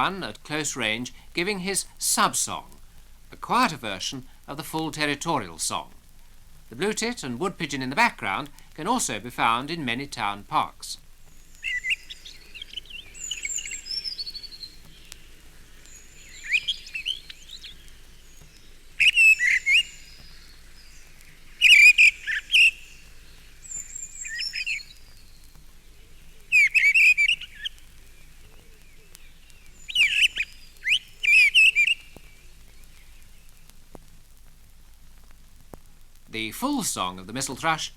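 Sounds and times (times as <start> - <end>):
thin high bird calls: 11.3 - 33.7.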